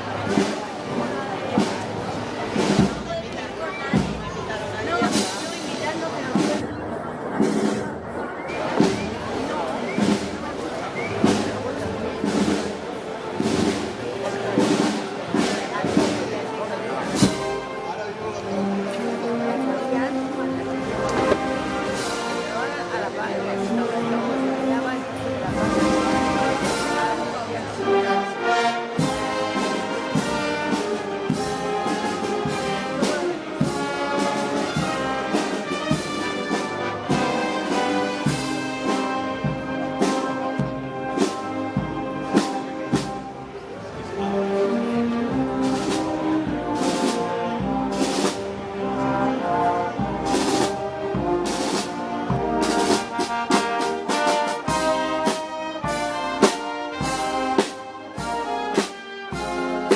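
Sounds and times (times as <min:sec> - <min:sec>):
brass band playing: 0:00.0 - 0:59.9
steady drum beat: 0:01.6 - 0:06.6, 0:17.1 - 0:17.8, 0:20.7 - 0:22.8, 0:25.4 - 0:59.9.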